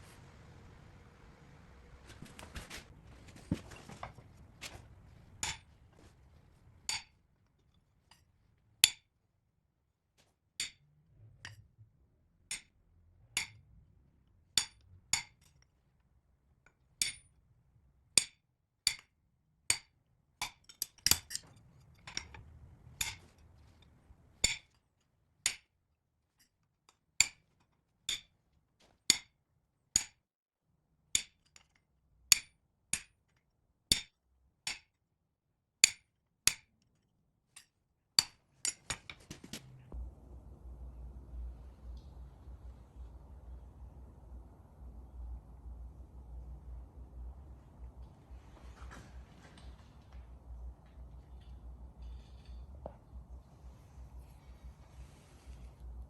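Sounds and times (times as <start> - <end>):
hammer striking metal on anvil: 6.9 - 7.1.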